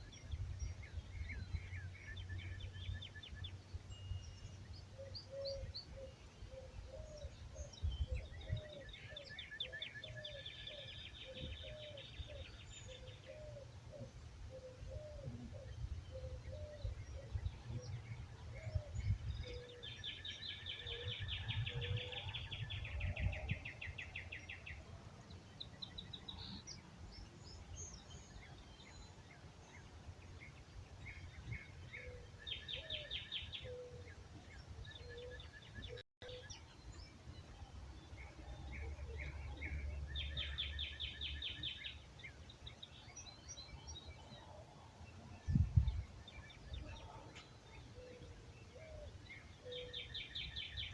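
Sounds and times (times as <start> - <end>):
wind rumble on microphone: 0.0 - 2.9, 7.1 - 8.9, 15.0 - 24.8, 45.1 - 47.3
bird trilling song: 0.0 - 50.9.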